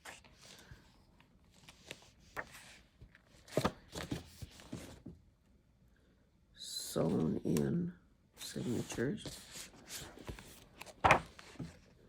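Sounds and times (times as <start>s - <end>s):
book pages turning: 1.5s - 2.8s, 8.6s - 11.8s.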